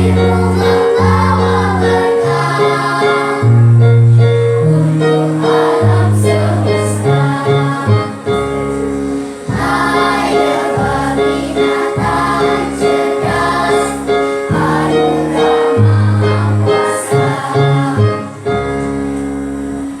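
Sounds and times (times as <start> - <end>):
children's choir singing: 0.0 - 19.0
instrumental accompaniment: 0.0 - 20.0.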